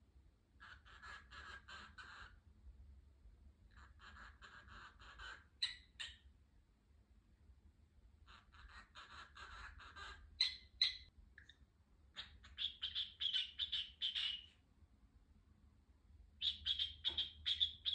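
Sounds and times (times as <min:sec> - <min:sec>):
cockatiel chirping: 0:00.6 - 0:02.4, 0:03.7 - 0:06.3, 0:08.2 - 0:11.1, 0:12.1 - 0:14.6, 0:16.4 - 0:17.9.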